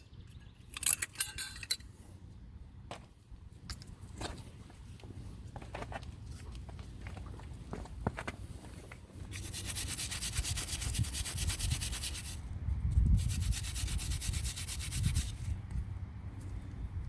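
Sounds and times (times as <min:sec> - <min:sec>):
scrubbing metal brake hardware: 0:09.3 - 0:12.4, 0:13.1 - 0:15.6.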